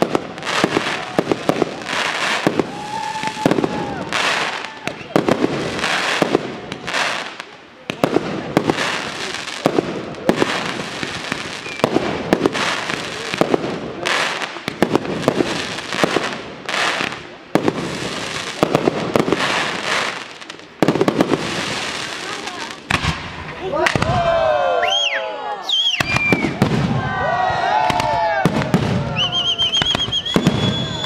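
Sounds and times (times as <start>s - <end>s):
firework hiss: 0.0s - 23.4s.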